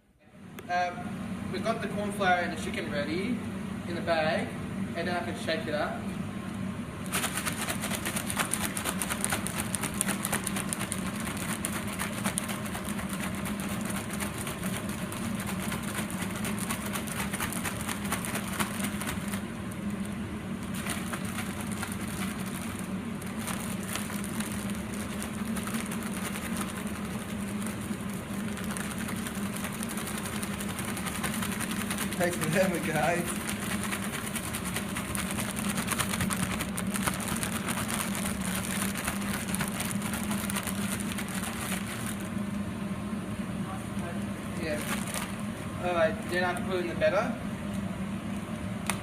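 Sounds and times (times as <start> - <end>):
chicken shaken in flour bag: 7.0 - 42.4, 44.5 - 45.6.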